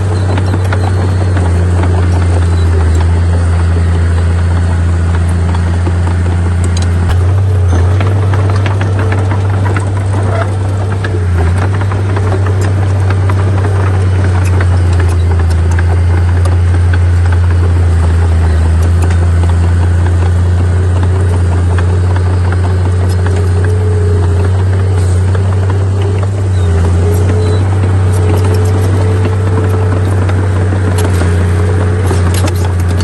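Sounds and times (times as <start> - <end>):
bulldozer diesel engine droning: 0.0 - 33.0.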